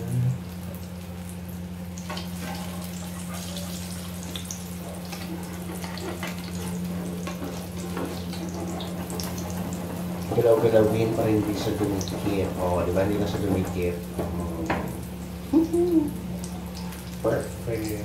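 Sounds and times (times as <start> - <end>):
steady low hum: 0.0 - 18.0
omelette sizzling in oil: 0.2 - 18.0
metal spatula scraping pan: 5.0 - 12.2.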